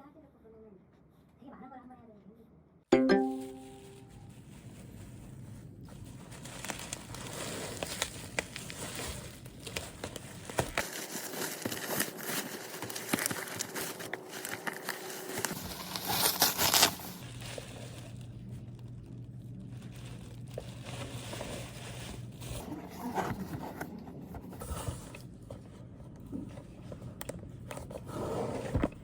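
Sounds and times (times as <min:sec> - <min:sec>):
packaging crinkling: 0:03.2 - 0:22.6
packaging ripping: 0:06.0 - 0:22.6.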